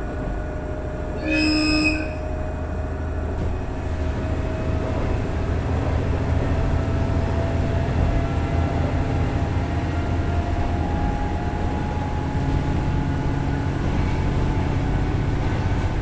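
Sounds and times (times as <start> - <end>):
diesel railcar running: 0.0 - 16.0
train horn blast: 1.2 - 2.5.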